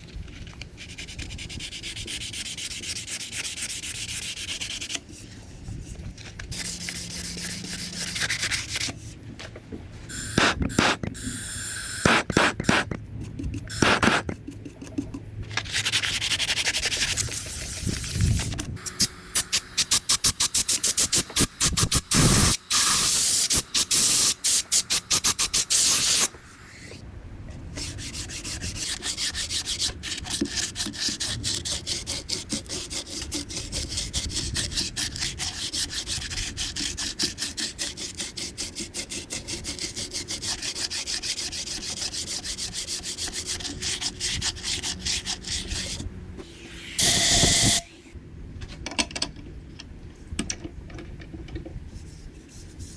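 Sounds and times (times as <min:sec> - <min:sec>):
sanding bamboo: 0:00.8 - 0:09.2, 0:12.1 - 0:26.9, 0:27.8 - 0:46.0.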